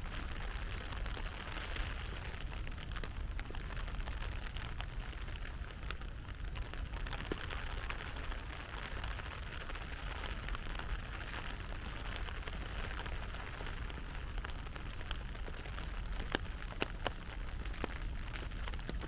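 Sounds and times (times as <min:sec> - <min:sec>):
sharp drip ticks: 0:14.4 - 0:19.0.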